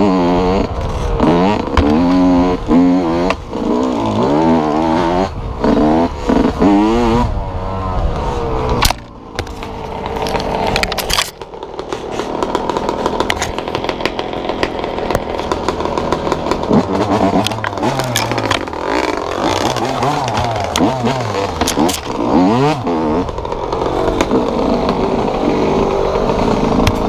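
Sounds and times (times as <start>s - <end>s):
dirt bike engine revving: 0.0s - 27.0s
sharp clicks and rattles: 8.6s - 27.0s.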